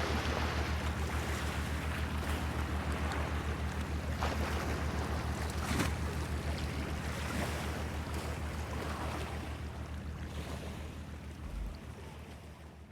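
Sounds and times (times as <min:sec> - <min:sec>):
low throbbing hum: 0:11.2 - 0:12.0.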